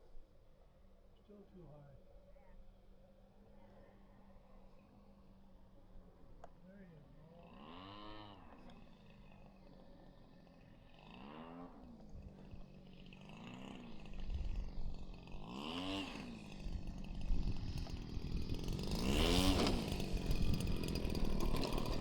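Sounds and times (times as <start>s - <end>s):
small two-stroke engine idling: 7.2s - 22.0s.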